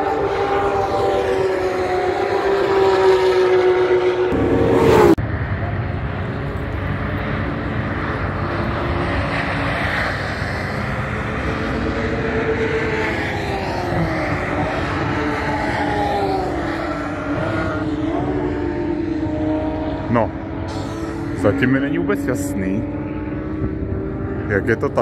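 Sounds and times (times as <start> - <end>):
faint racing engine notes: 0.0 - 25.0
sports car engine accelerating: 0.0 - 25.0
steady rushing noise: 19.3 - 25.0.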